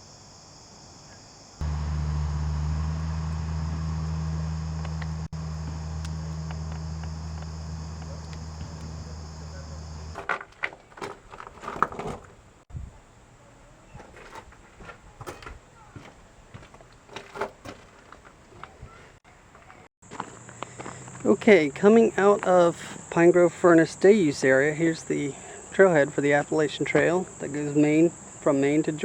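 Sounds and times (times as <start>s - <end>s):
low vehicle drone: 1.6s - 10.2s.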